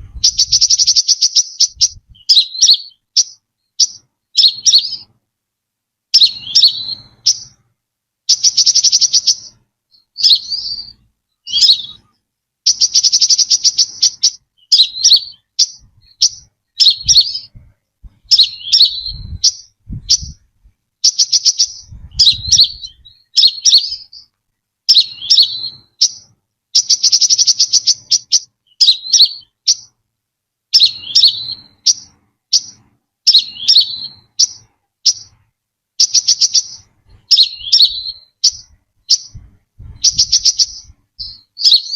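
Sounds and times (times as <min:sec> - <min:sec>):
bird buzzy pulsed trill: 0:00.0 - 0:05.1, 0:08.3 - 0:17.6, 0:24.9 - 0:29.9, 0:36.0 - 0:41.9
bird sharp slurred chirps: 0:00.0 - 0:05.2, 0:06.1 - 0:07.7, 0:08.3 - 0:24.3, 0:24.9 - 0:30.0, 0:30.7 - 0:41.9.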